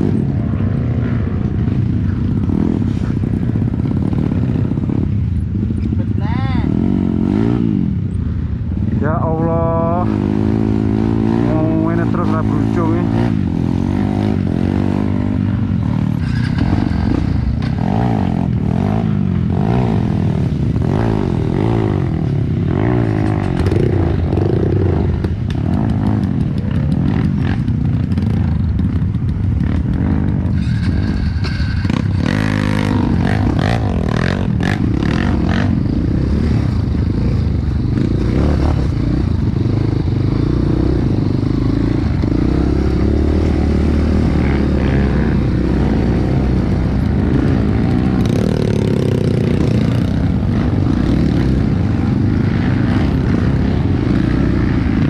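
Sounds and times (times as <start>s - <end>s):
motorcycle engine revving: 0.0s - 55.0s
motorcycle knocks and rattles: 13.2s - 55.0s.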